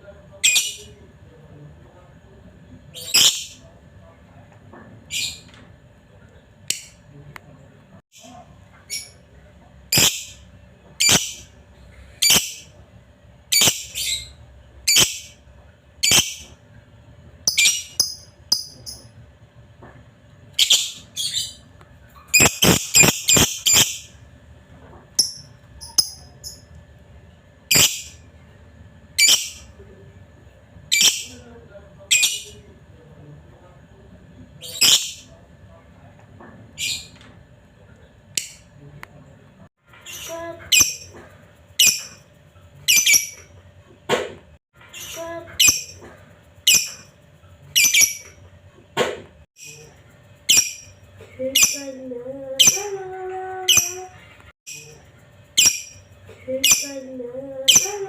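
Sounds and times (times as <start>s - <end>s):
lovebird chirping: 9.9s - 10.4s, 11.0s - 11.4s, 13.5s - 14.3s, 16.0s - 16.5s, 17.5s - 19.1s, 22.3s - 24.1s, 29.2s - 29.7s, 42.9s - 43.4s, 47.7s - 48.3s, 55.6s - 57.1s.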